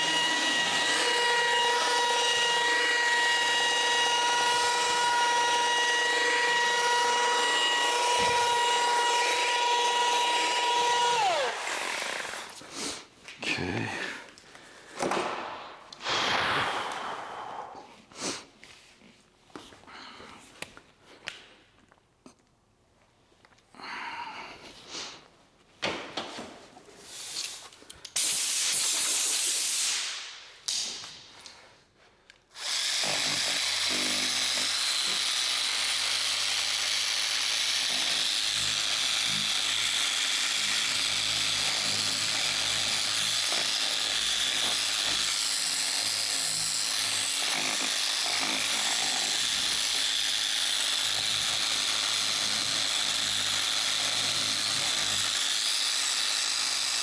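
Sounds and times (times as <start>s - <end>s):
car polisher running: 0.0s - 12.6s, 32.6s - 57.0s
short hiss: 15.8s - 18.4s.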